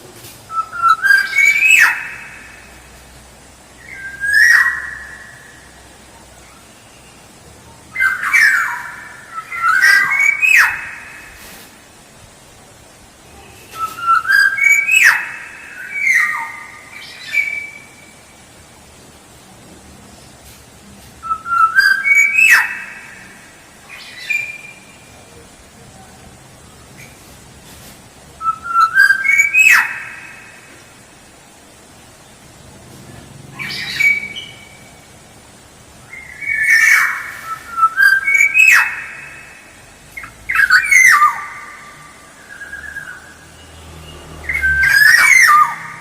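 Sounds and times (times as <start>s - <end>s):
bird whistling song: 0.5s - 2.4s, 3.8s - 5.6s, 8.0s - 11.2s, 13.6s - 18.0s, 21.2s - 23.2s, 28.4s - 30.5s, 33.6s - 34.9s, 36.1s - 39.6s, 40.2s - 46.0s.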